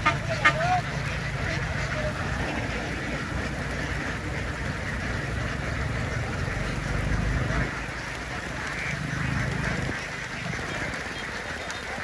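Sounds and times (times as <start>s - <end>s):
flock of ducks quacking: 0.0s - 12.0s.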